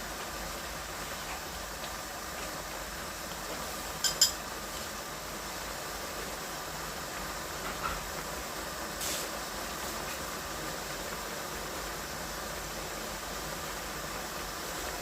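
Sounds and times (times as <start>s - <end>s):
steady hiss: 0.0s - 15.0s
cookware clinking: 4.0s - 4.4s.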